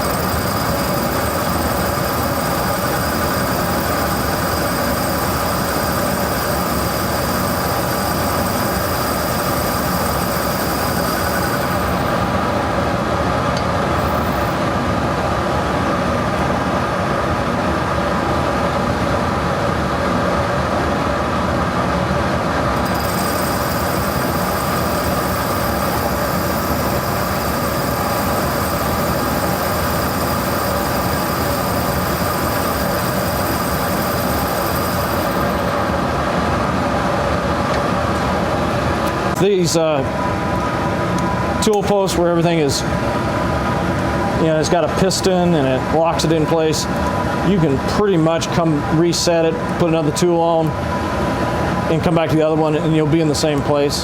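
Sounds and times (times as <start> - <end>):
metal lathe humming: 0.0 - 12.9, 13.9 - 14.6, 22.8 - 36.8.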